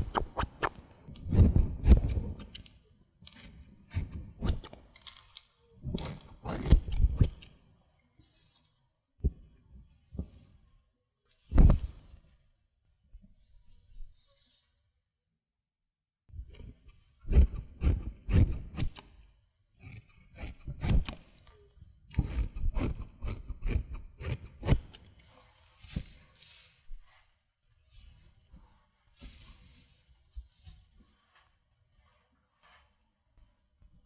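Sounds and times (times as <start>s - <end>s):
scissors snipping hair: 0.0s - 2.6s, 3.3s - 5.1s, 6.0s - 7.5s, 16.4s - 19.1s, 19.8s - 21.2s, 22.1s - 25.1s
soft rubbing sounds: 22.2s - 34.0s.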